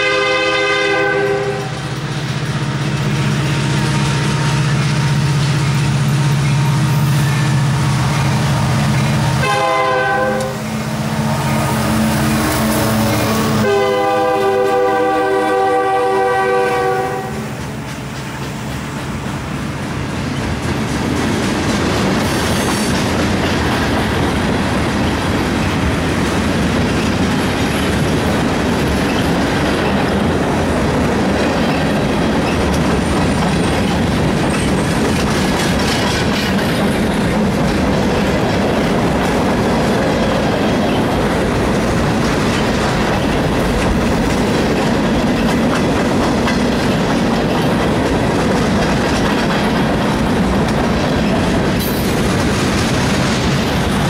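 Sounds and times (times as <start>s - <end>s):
clickety-clack over rail joints: 0.0s - 54.0s
rumble of steel wheels on rails: 0.0s - 54.0s.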